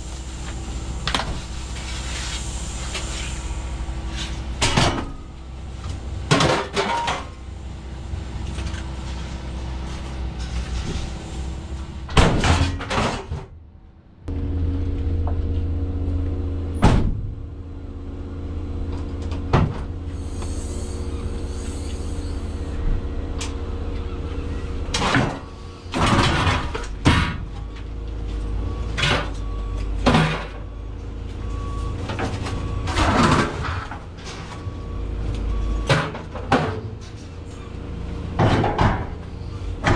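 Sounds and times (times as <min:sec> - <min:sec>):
vehicle engine running: 0:00.0 - 0:12.5, 0:13.5 - 0:39.9
sharp knocks and clanks: 0:38.4 - 0:39.2.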